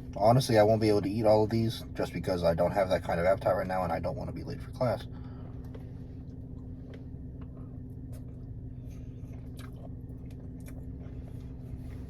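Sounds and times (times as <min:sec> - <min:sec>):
low hum: 0:00.0 - 0:12.0
wet chewing: 0:09.1 - 0:12.0.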